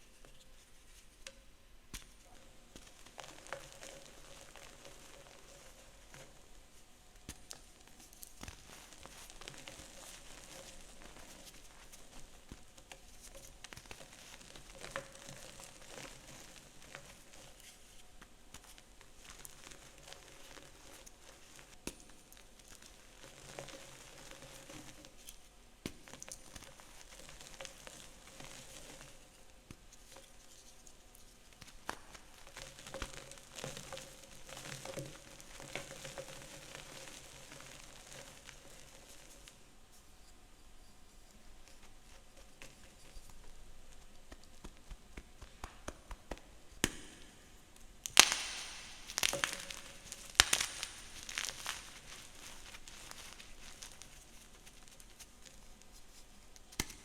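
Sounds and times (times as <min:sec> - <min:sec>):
chalk crushing and crunching: 0:48.2 - 0:56.9.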